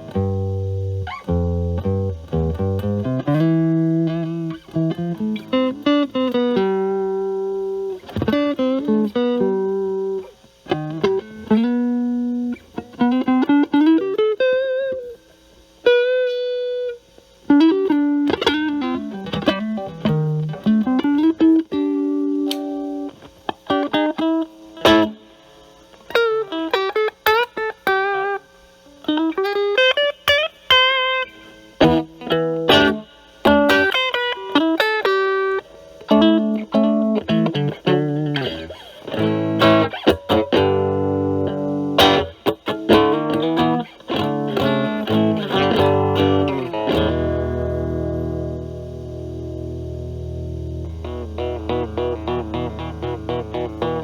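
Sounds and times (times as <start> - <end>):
lightly overdriven electric guitar: 0.0 - 54.0.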